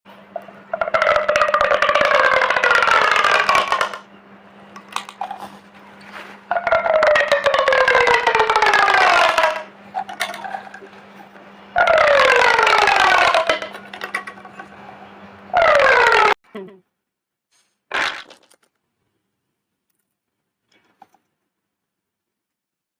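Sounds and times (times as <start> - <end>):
plastic toy tube buzzing: 0.3 - 4.1, 4.8 - 14.8, 15.5 - 16.4, 17.9 - 18.6.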